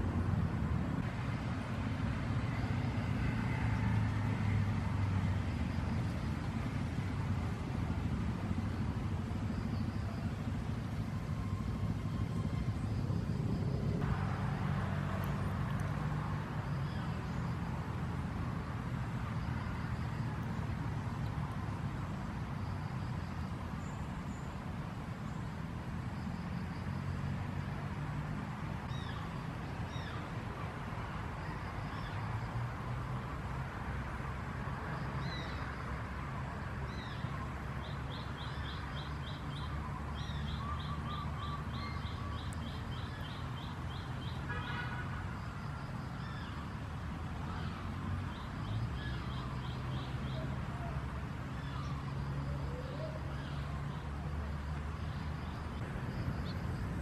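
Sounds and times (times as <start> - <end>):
low steady rumble: 0.0 - 26.2
small birds chirping: 36.8 - 44.8.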